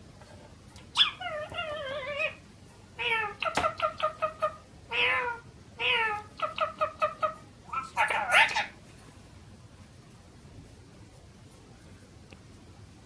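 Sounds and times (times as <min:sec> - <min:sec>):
parrot meow-like calls: 0:03.0 - 0:08.8.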